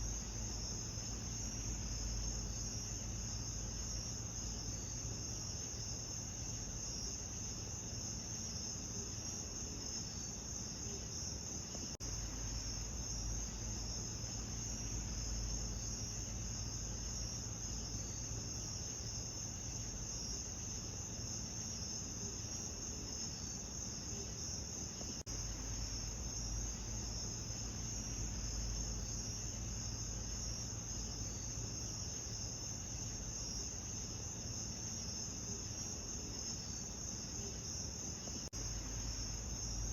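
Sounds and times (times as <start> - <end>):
low steady rumble: 0.0 - 7.9, 12.0 - 21.6, 25.3 - 34.4, 38.6 - 39.9
crickets chirping: 0.0 - 39.9.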